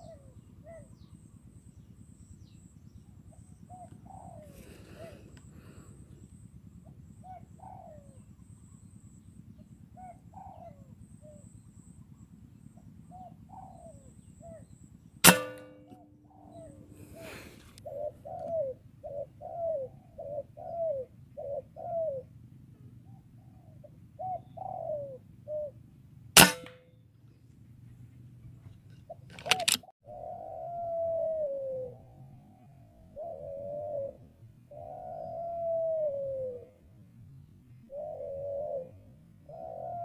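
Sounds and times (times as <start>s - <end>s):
doves cooing: 0.0s - 1.6s, 3.1s - 25.8s, 28.0s - 40.0s
air rifle shots: 15.2s - 17.6s, 26.4s - 26.8s.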